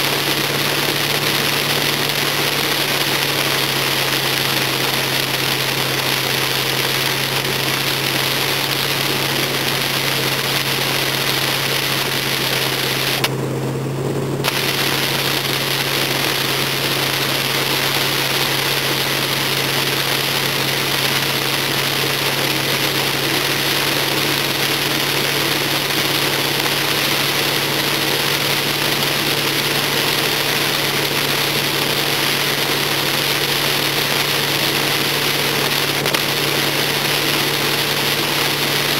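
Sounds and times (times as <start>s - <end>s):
rain hiss on wet road: 0.0s - 13.3s, 14.4s - 38.9s
car engine running: 0.0s - 38.9s.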